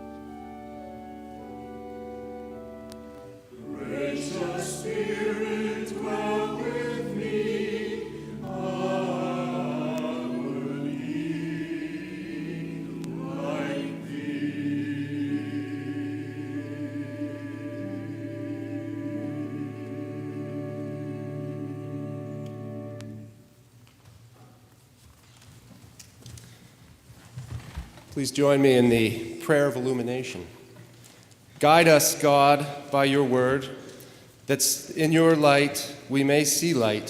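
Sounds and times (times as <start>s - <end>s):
choir singing: 0.0s - 23.4s
organ chords: 0.0s - 23.7s.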